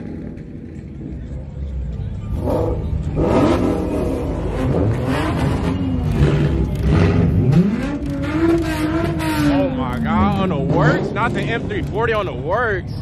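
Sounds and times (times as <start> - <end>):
car engine revving hard: 2.4 - 11.8.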